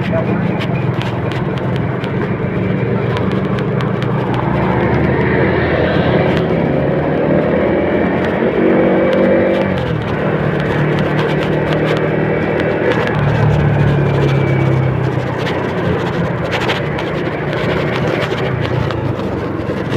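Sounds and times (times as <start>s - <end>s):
vehicle engine running: 0.0s - 19.9s.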